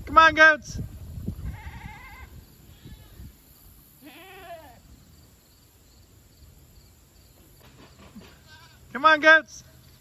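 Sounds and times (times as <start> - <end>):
goat bleating: 1.4 - 3.3, 4.0 - 4.8, 8.3 - 9.1.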